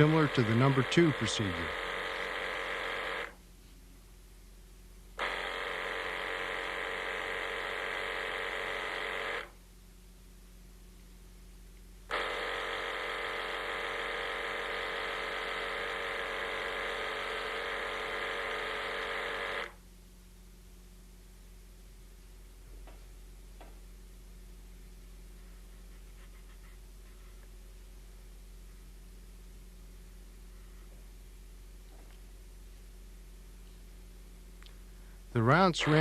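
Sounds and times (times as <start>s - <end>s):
small electric motor buzzing: 0.0s - 3.4s, 5.2s - 9.6s, 12.1s - 19.8s, 35.8s - 36.0s.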